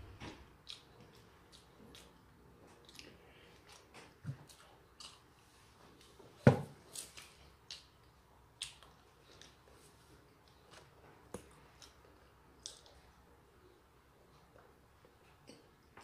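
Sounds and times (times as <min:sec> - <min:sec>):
chewing bread: 0:00.3 - 0:06.2, 0:07.0 - 0:13.4.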